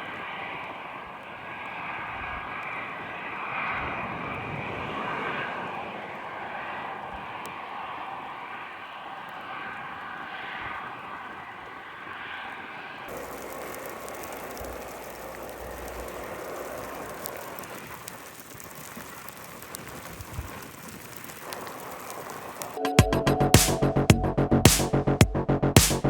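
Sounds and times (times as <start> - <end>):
low rumble: 23.0 - 26.0.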